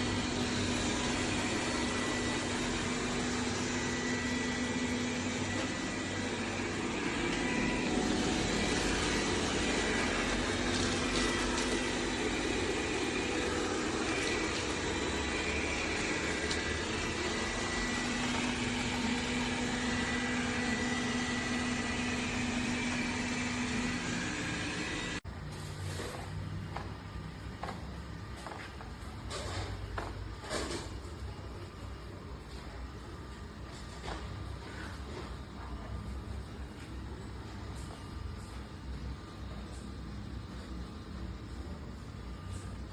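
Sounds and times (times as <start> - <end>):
robot vacuum whirring: 0.0 - 25.2.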